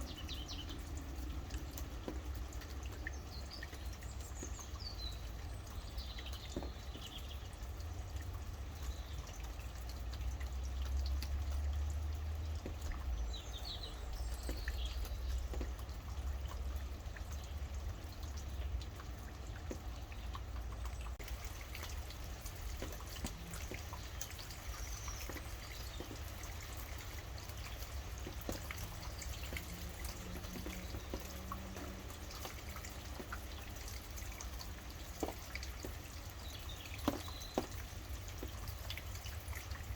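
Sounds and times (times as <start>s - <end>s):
drops dripping close by: 0.0s - 39.9s
rain falling: 0.0s - 39.9s.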